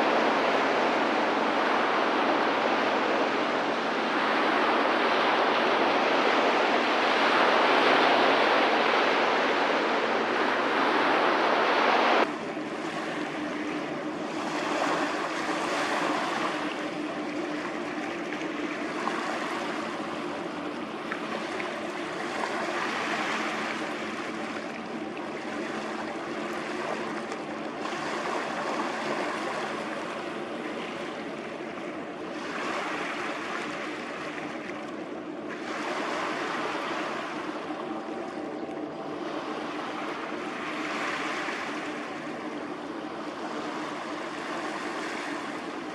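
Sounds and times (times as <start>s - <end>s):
boat engine drone: 0.0s - 45.9s
rushing water and wind: 0.0s - 45.9s
water sloshing and splashing: 12.2s - 45.9s.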